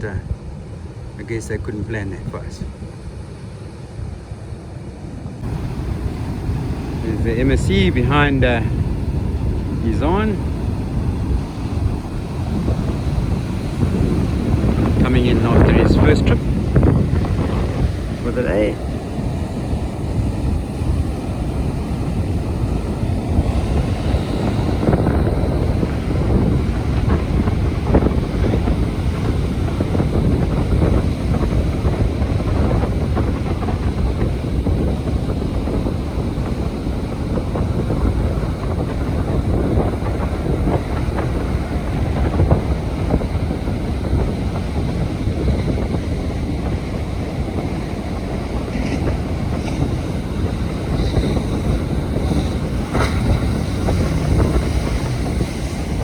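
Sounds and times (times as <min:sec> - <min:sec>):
surf washing on beach: 0:00.0 - 0:56.0
wind buffeting microphone: 0:00.0 - 0:56.0.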